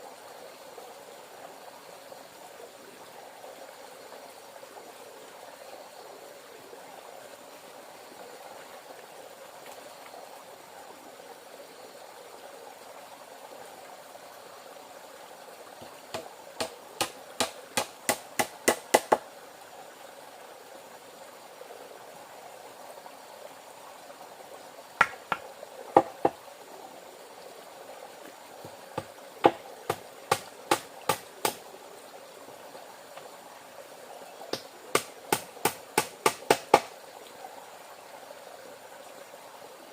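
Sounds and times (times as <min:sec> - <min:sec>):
running water: 0:00.0 - 0:39.9
sharp knocks on wood: 0:15.8 - 0:19.2, 0:25.0 - 0:25.4, 0:26.0 - 0:26.4, 0:28.6 - 0:31.6, 0:34.5 - 0:36.9.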